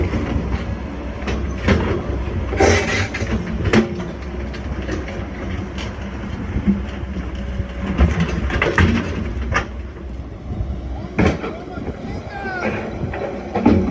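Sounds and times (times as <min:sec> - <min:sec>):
excavator engine running: 0:00.0 - 0:13.9
metal clanks and scrapes: 0:02.6 - 0:04.1.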